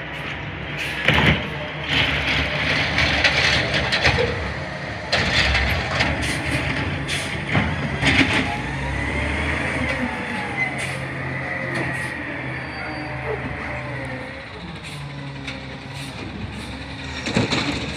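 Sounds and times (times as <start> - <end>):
garbage truck engine running: 0.0 - 17.9
knocks and clatters: 1.0 - 4.5, 5.1 - 8.5, 16.2 - 17.9.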